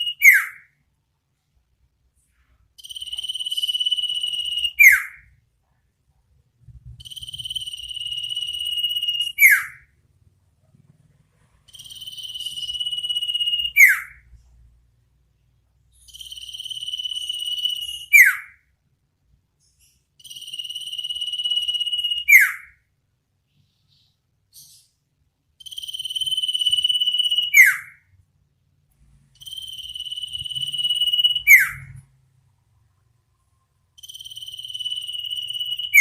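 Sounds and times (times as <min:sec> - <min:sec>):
sharp falling whistle: 0:00.0 - 0:00.7, 0:02.8 - 0:05.3, 0:07.0 - 0:09.9, 0:11.9 - 0:14.2, 0:16.1 - 0:18.6, 0:20.6 - 0:22.7, 0:26.0 - 0:28.0, 0:29.4 - 0:32.0.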